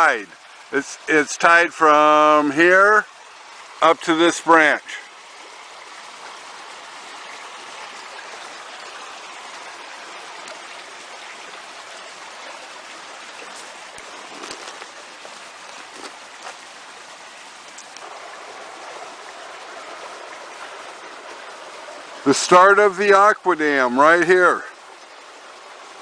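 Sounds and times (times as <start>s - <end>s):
running water rushing: 0.0s - 26.0s
faint ticks: 17.6s - 18.1s.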